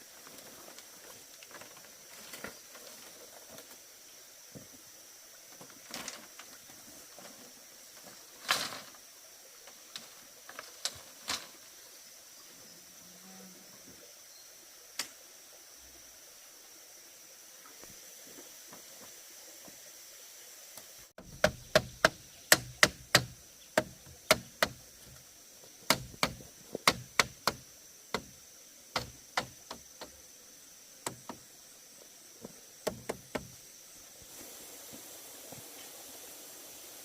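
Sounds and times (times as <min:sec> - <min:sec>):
sharp knocks: 0:21.2 - 0:25.2, 0:25.9 - 0:28.4, 0:29.0 - 0:30.2, 0:31.0 - 0:31.4, 0:32.8 - 0:33.6.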